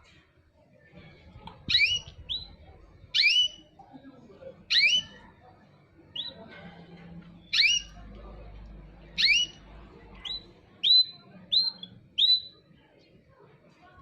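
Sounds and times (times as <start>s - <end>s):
birds chirping: 1.5s - 3.8s, 4.6s - 6.6s, 7.2s - 13.1s.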